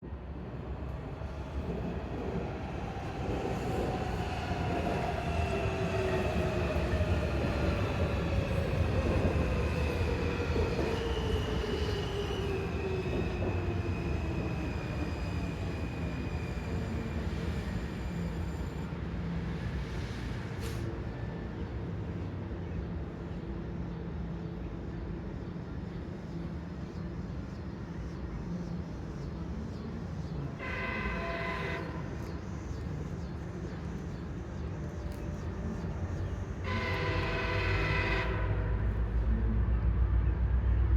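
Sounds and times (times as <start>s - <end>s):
wheels squealing on rails: 2.6s - 21.6s.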